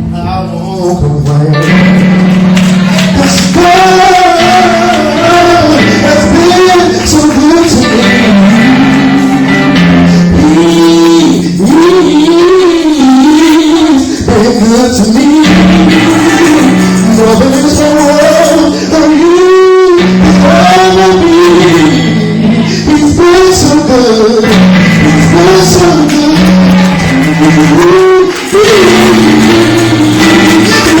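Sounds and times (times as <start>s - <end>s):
held accompaniment chords: 0.0s - 31.0s
person singing gospel with vibrato: 0.0s - 31.0s.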